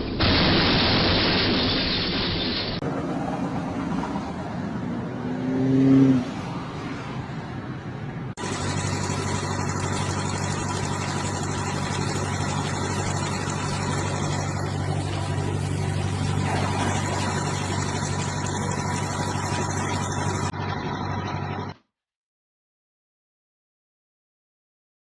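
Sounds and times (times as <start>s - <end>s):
engine humming: 8.1s - 21.8s
thin steady whine: 8.4s - 21.7s.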